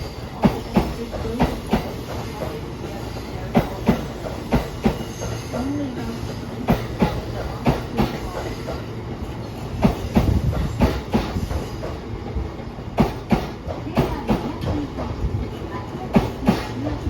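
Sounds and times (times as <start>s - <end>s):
electric train rumbling: 0.0s - 17.0s
train wheels clacking over rail joints: 0.0s - 17.0s.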